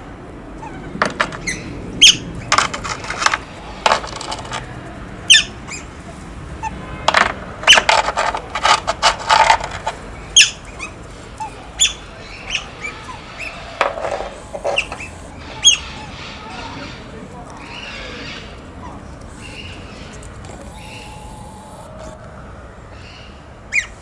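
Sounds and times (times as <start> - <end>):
otters chirping: 10.3 - 22.3.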